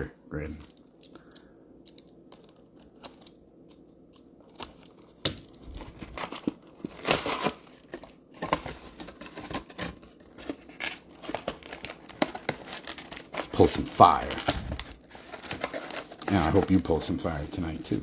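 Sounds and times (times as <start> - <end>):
packaging tearing and crinkling: 4.5 - 18.0.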